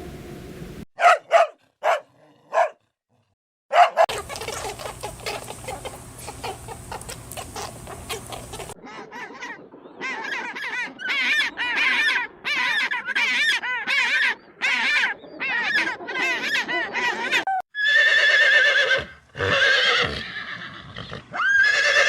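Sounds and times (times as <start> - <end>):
low hum: 0.0 - 0.8
geese honking: 4.1 - 8.8.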